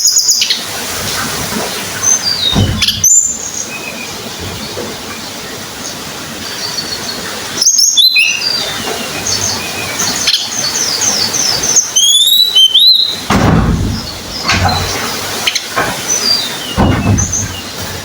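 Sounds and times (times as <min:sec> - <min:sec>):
songbird chirping: 0:00.0 - 0:18.0
low rustling: 0:00.9 - 0:03.7, 0:13.2 - 0:18.0
rising whistled bird notes: 0:10.8 - 0:13.3.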